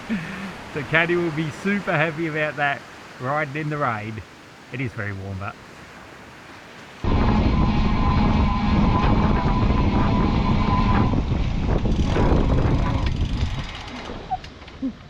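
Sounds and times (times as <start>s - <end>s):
loud rushing noise: 7.0s - 12.8s
vehicle motor whining: 7.1s - 14.0s.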